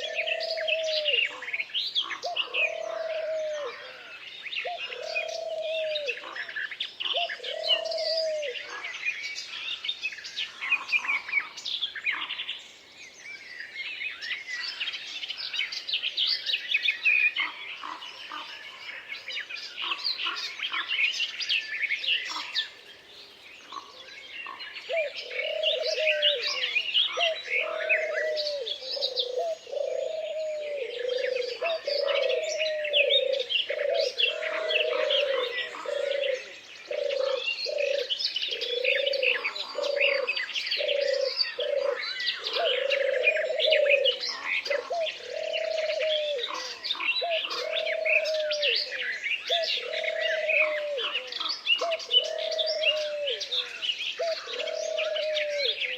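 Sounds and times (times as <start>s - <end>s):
low cooing bird call: 0.0s - 9.8s, 23.6s - 55.9s
chorus of birds chirping: 0.0s - 55.9s.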